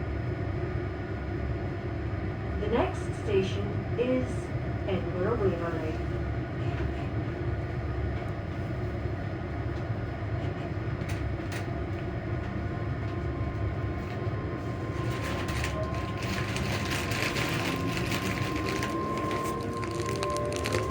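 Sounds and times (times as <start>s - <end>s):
train motors humming: 0.6s - 20.9s
wheel-on-rail rumble: 9.6s - 20.9s
rattling rail noise: 10.3s - 20.9s
steady higher tone: 13.3s - 20.9s.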